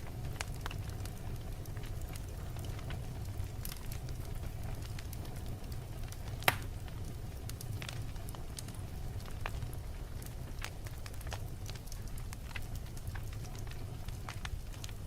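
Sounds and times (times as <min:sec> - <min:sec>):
wood fire burning: 0:00.0 - 0:15.0
loud pop from fire: 0:06.2 - 0:06.8.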